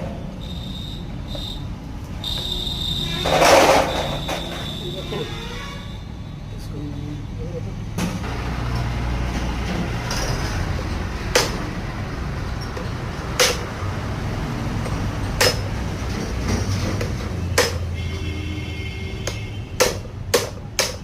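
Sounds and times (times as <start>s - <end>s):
hammer striking metal: 11.3s - 11.7s, 13.4s - 13.8s, 14.8s - 15.8s, 17.0s - 17.9s, 19.2s - 21.0s.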